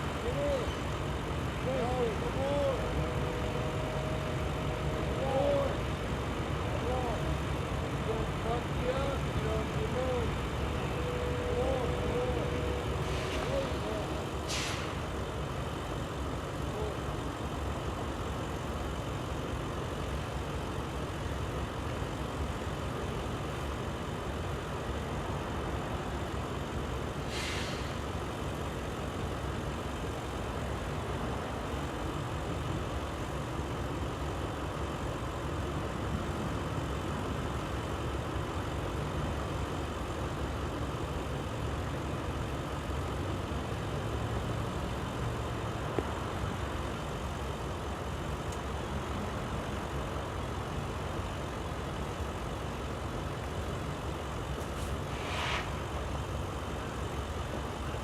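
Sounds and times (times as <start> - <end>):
heavy diesel engine rumbling: 0.0 - 58.0
short hiss: 13.0 - 15.1, 27.2 - 28.1, 54.6 - 56.1.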